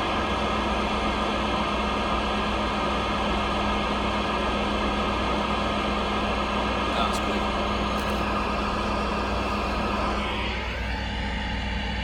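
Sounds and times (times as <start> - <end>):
radio static hiss: 7.0 - 11.0
low hum: 7.0 - 12.0.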